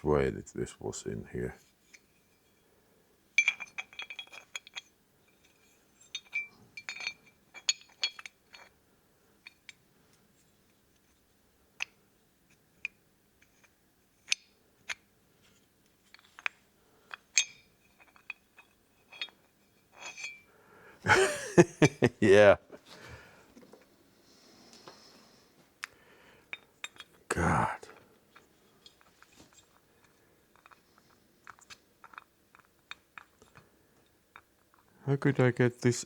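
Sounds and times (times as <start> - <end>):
small metal parts clinking: 3.4 - 8.8, 12.8 - 20.5, 26.5 - 27.2, 28.3 - 33.6.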